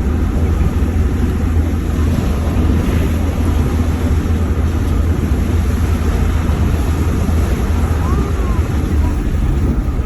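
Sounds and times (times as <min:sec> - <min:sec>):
vehicle engine and road rumble: 0:00.0 - 0:10.0.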